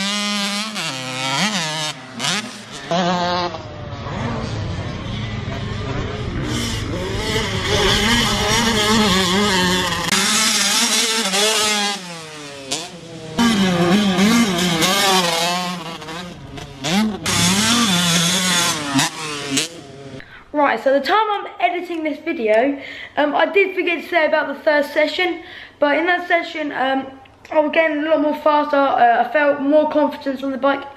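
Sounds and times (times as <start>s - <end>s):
motocross bike engine revving: 0.0s - 20.2s.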